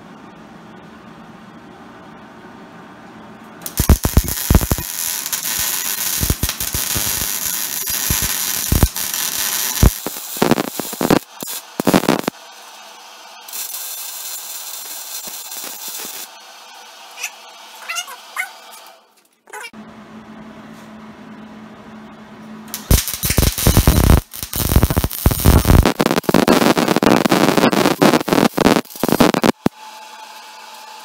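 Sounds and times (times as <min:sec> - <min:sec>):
thin welding hiss: 0:03.6 - 0:12.4, 0:13.4 - 0:16.4, 0:22.7 - 0:29.7
welder arc crackling and popping: 0:03.6 - 0:17.3, 0:22.7 - 0:29.8.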